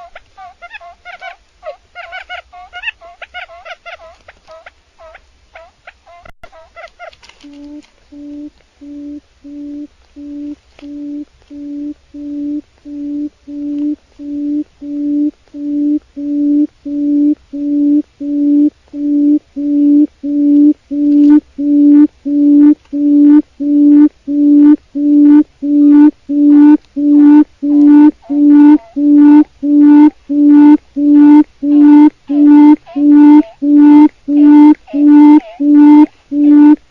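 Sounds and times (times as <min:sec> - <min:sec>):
quail hooting: 0:00.0 - 0:16.4, 0:24.6 - 0:36.8.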